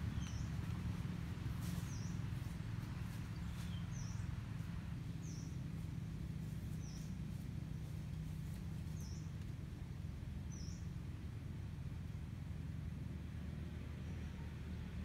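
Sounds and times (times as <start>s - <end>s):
bird chirping: 0.0s - 0.8s, 1.6s - 5.6s, 8.9s - 9.4s, 10.5s - 10.9s
low hum: 0.0s - 15.0s.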